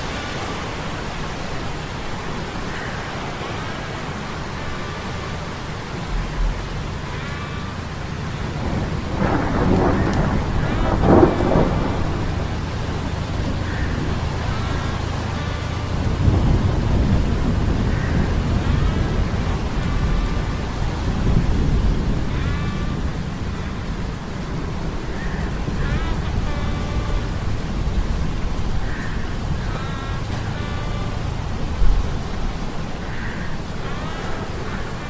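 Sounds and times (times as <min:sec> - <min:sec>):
rain: 0:00.0 - 0:35.0
rolling thunder: 0:08.2 - 0:14.7, 0:15.8 - 0:25.0.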